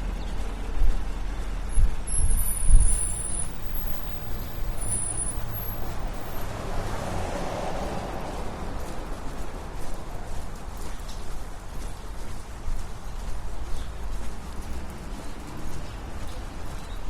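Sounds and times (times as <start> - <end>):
large vehicle passing: 0.0 - 10.2
traffic rumble: 0.0 - 17.0.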